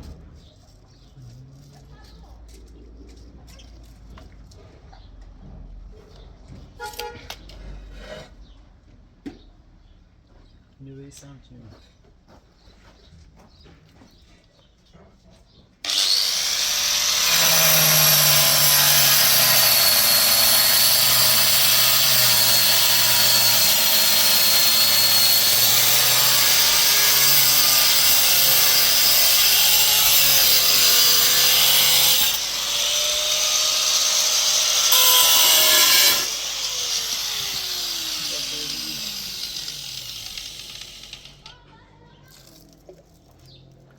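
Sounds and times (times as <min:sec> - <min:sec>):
electric power tool cutting: 0:15.8 - 0:41.5.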